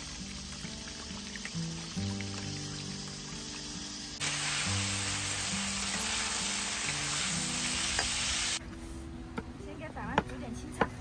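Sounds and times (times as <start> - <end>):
beans sizzling in a wok: 0.0 - 8.6
background music: 0.0 - 11.0.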